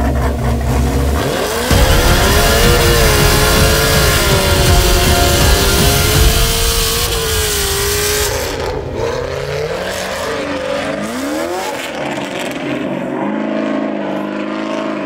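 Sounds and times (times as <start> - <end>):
car engine revving hard: 0.0 - 15.0
loud hiss: 1.4 - 9.6.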